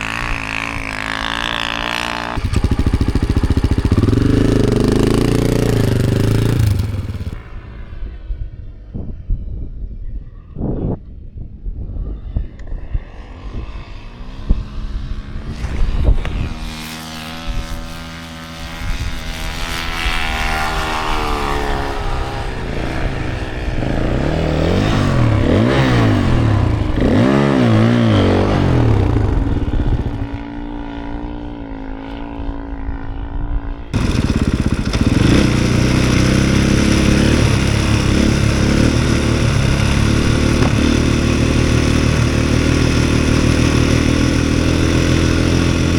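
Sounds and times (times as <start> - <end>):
snowbike engines revving: 0.0 - 8.0, 16.4 - 30.5, 34.0 - 45.9.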